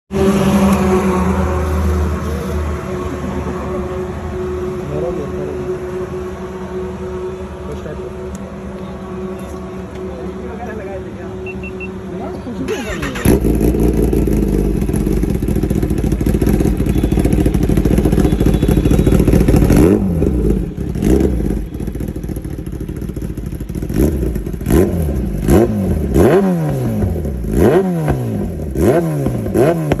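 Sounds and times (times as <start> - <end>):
motorcycle engine revving: 0.1 - 3.6, 12.6 - 30.0.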